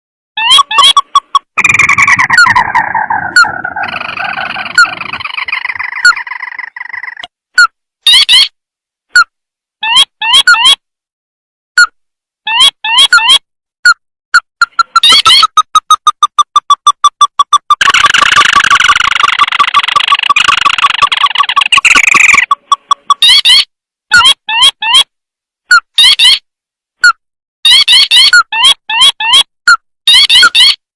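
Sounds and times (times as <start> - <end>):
bird chattering trill: 0.4 - 7.3, 14.6 - 23.6, 27.7 - 29.5, 30.1 - 30.8
sharp upswept bird notes: 0.4 - 7.3, 17.4 - 23.6.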